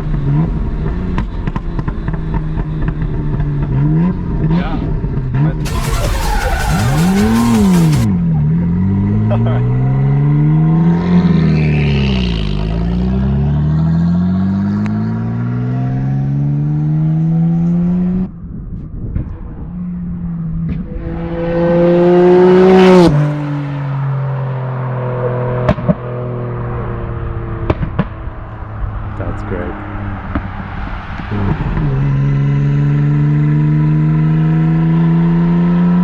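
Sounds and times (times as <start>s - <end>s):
car engine accelerating through gears: 5.2s - 18.3s, 19.8s - 36.0s
exhaust pops: 5.6s - 8.2s.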